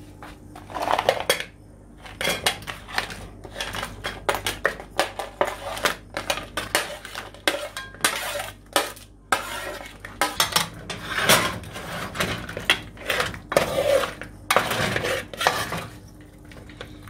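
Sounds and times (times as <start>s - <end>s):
metal spoon scraping a steel pot: 6.6s - 16.0s.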